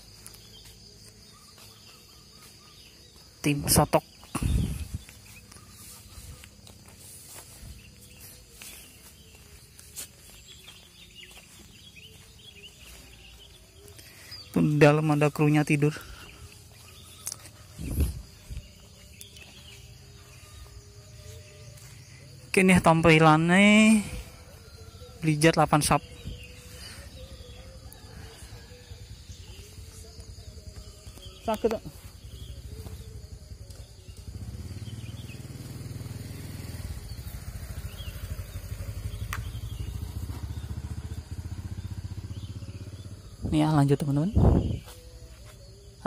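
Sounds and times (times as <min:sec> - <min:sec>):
birds: 0:00.0 - 0:46.0
faint insects: 0:00.0 - 0:46.0
engine idling: 0:26.6 - 0:43.5.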